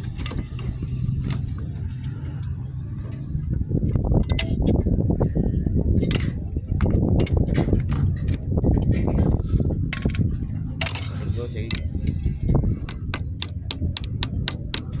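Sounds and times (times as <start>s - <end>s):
steady low rumble: 0.0s - 15.0s
light metallic clicks and clinks: 10.8s - 15.0s.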